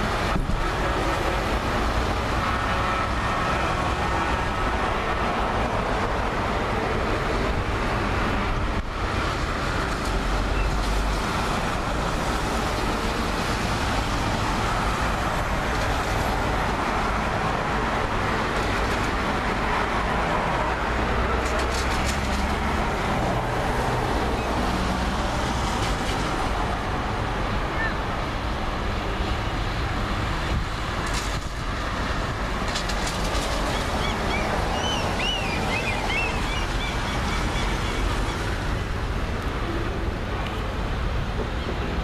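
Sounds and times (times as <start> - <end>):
tractor engines rumbling: 0.0 - 42.0.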